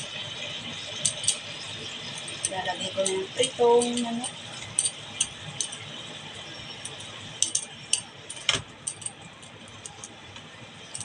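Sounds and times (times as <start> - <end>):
steady hiss: 0.0 - 11.0
utensils clinking on cookware: 1.0 - 6.0, 6.7 - 10.2.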